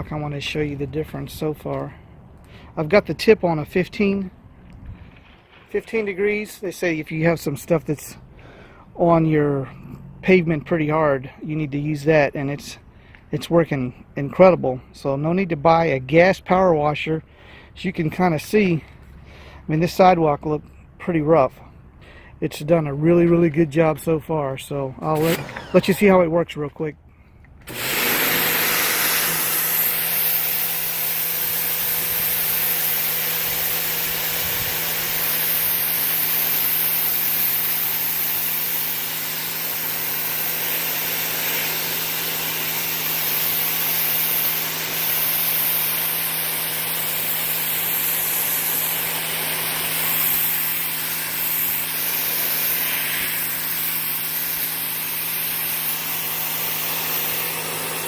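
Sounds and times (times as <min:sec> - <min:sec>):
pressure washer motor humming: 0:25.0 - 0:26.5, 0:27.6 - 0:58.0
water jet hissing on concrete: 0:27.7 - 0:58.0.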